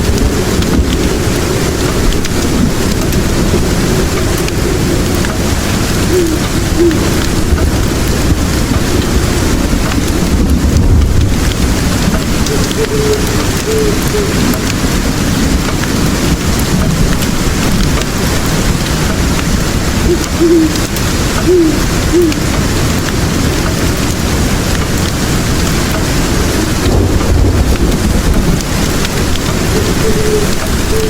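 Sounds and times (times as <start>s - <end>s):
faint fire crackles: 0.0s - 31.0s
heavy rain: 0.0s - 31.0s
low rumble of thunder: 0.0s - 31.0s
owl hoots: 6.0s - 7.2s, 12.5s - 14.6s, 20.0s - 22.5s, 29.7s - 31.0s.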